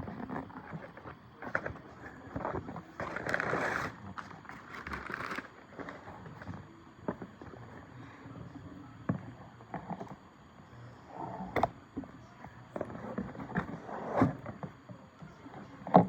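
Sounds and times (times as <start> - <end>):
packaging taps clicks and rustles: 4.2 - 6.0.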